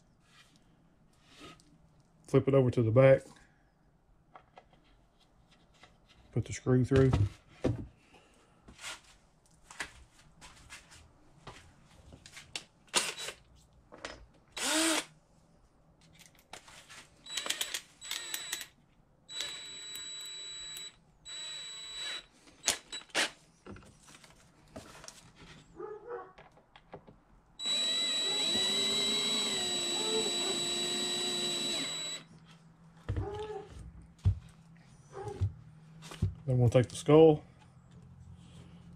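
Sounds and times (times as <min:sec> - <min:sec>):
cordless drill whining: 0:14.6 - 0:15.1, 0:17.3 - 0:18.7, 0:19.3 - 0:23.2, 0:27.6 - 0:32.3.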